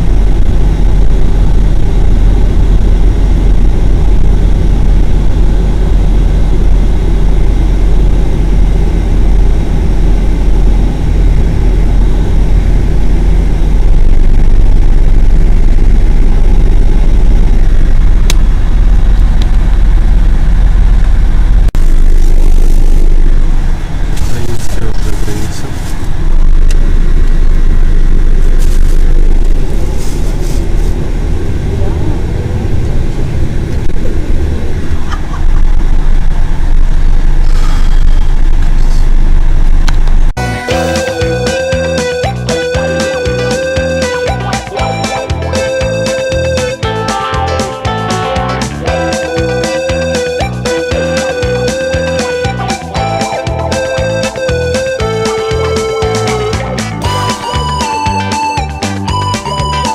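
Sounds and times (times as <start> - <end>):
vehicle rumble from inside: 0.0 - 58.6
rustling: 28.5 - 31.0.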